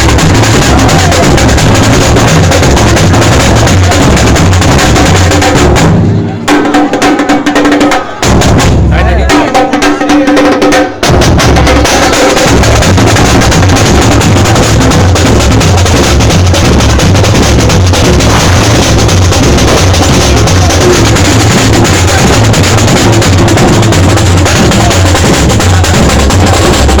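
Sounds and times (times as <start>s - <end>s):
steady bass drum beat: 0.0s - 6.7s, 8.2s - 9.8s, 11.0s - 27.0s
percussion band playing: 0.0s - 27.0s.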